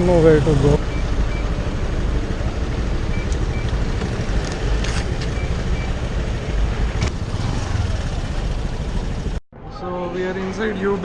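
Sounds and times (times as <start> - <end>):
street traffic rumble: 0.0 - 11.0
high beeps: 0.8 - 1.5, 5.3 - 6.0.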